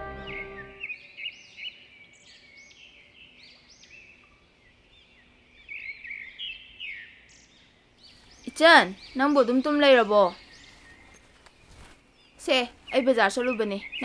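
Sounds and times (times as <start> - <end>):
soft background music: 0.0 - 0.8
small birds chirping: 0.0 - 14.0.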